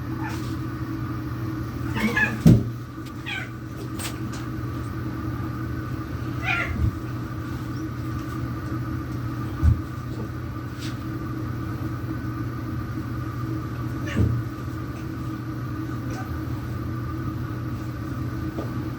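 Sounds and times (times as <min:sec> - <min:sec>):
low background hum: 0:00.0 - 0:18.9
cat crying: 0:01.8 - 0:02.5, 0:03.2 - 0:03.6, 0:06.4 - 0:06.9.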